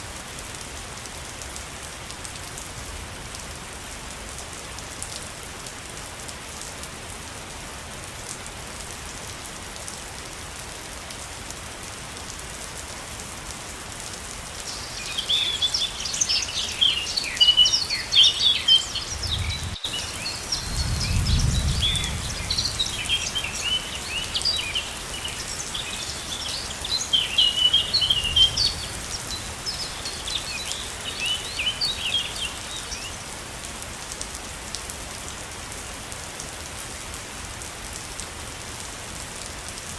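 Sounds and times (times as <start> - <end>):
waterfall rushing: 14.6 - 33.2
birds chirping: 14.6 - 33.3.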